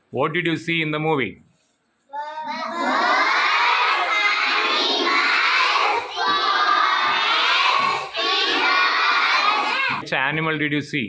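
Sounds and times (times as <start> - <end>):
children shouting: 2.2 - 10.0.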